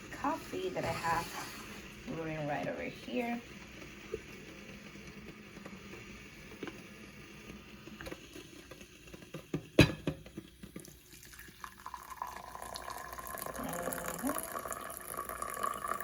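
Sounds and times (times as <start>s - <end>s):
coffee pouring into a cup: 3.4s - 16.0s.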